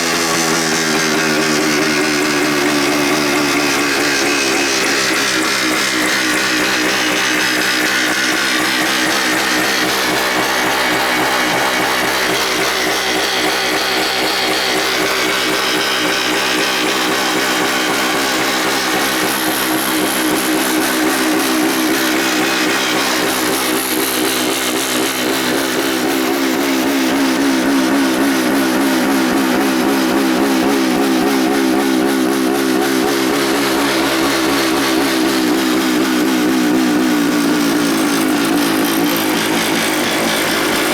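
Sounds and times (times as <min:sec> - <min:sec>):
two-stroke engine idling: 0:00.0 - 0:40.9.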